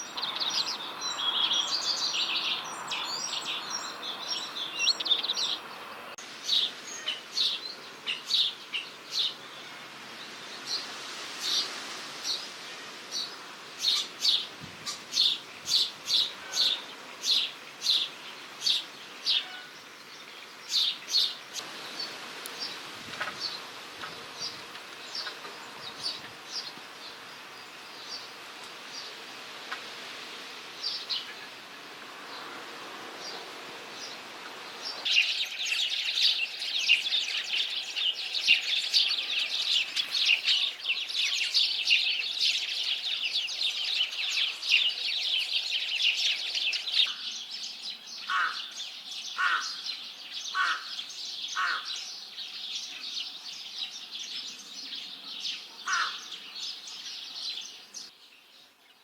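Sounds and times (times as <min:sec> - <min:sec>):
sparrows chattering loudly: 0:00.0 - 0:29.2, 0:33.2 - 0:59.0
sparrows chirping: 0:00.0 - 0:29.2, 0:30.2 - 0:59.0
rook cawing: 0:48.3 - 0:48.8, 0:49.4 - 0:49.9, 0:50.5 - 0:52.0, 0:55.8 - 0:56.3.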